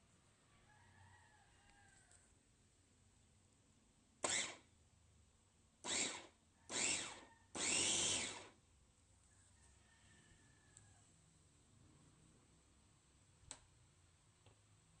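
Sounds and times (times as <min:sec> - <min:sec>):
meat grinder motor pulsing: 0:04.2 - 0:04.6, 0:05.8 - 0:08.6.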